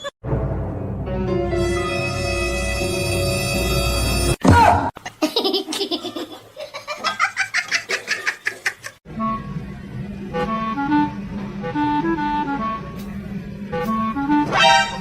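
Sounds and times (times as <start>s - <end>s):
music: 0.2s - 4.4s, 9.1s - 15.0s
high rapid laughter: 5.1s - 9.0s.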